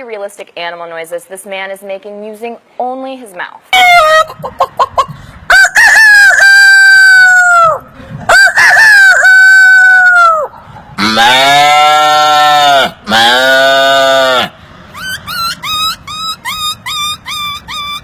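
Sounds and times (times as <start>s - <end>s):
man imitating rooster crowing: 5.5s - 15.9s.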